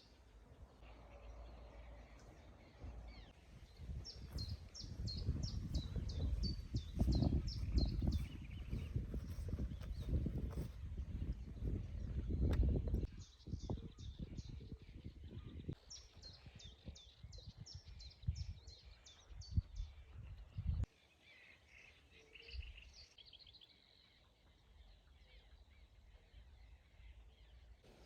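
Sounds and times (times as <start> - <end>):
soft bird calls: 0.0 - 28.0
songbird chirping: 0.0 - 28.0.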